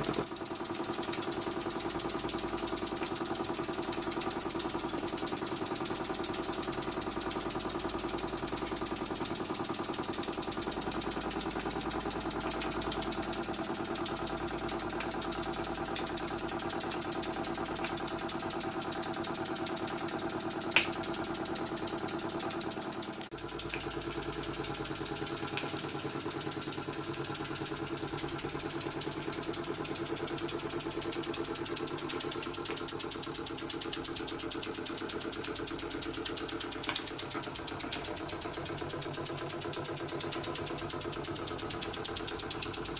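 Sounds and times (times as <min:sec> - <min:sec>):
fan whirring: 0:00.0 - 0:42.9
model steam engine chuffing: 0:00.0 - 0:42.9
sharp click: 0:20.7 - 0:21.2, 0:29.8 - 0:42.8.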